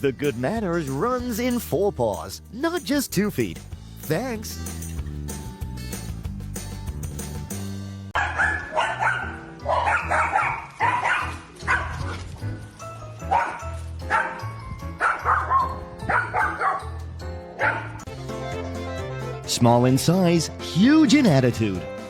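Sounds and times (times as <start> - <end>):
background music: 0.0 - 22.0
dog barking: 8.2 - 12.2, 13.3 - 14.4, 15.0 - 17.0, 17.6 - 18.0.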